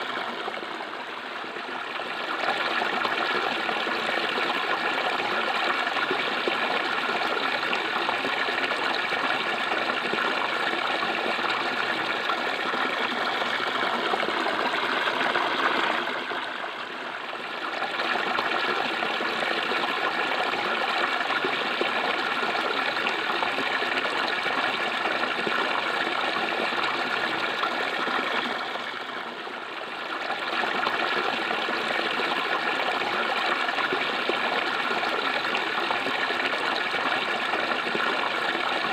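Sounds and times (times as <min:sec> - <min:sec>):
water flowing and gurgling: 0:00.0 - 0:38.9.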